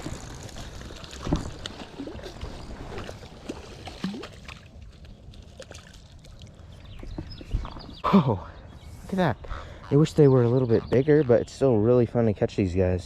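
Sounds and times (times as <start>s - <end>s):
water splashing and sloshing: 0.0s - 8.2s.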